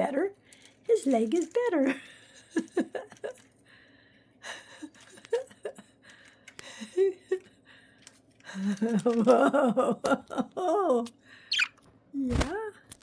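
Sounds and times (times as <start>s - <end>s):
soft human gasps and chuckles: 3.3s - 9.2s
budgerigars chattering: 11.5s - 11.7s.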